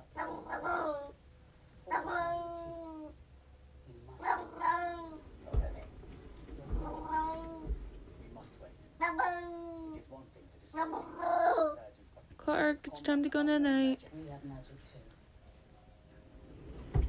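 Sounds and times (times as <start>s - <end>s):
cat meowing: 1.9s - 3.2s, 4.2s - 5.2s, 6.7s - 7.8s, 9.0s - 10.0s
low bumps: 16.5s - 17.0s.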